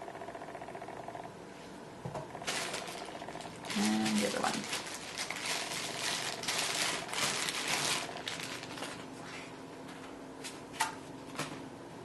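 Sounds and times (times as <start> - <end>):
plastic packaging crinkling: 2.4 - 9.1.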